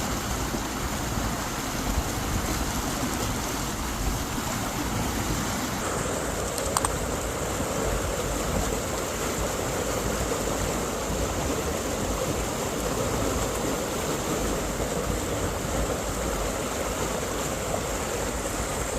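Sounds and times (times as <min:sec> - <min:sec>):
stream rushing over rocks: 0:00.0 - 0:18.9
sharp clicks: 0:06.6 - 0:07.0.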